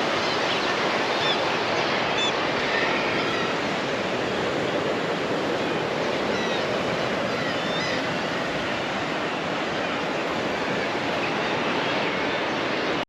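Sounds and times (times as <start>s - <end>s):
sea surf rushing: 0.0s - 13.0s
faint high bird calls: 7.3s - 8.2s.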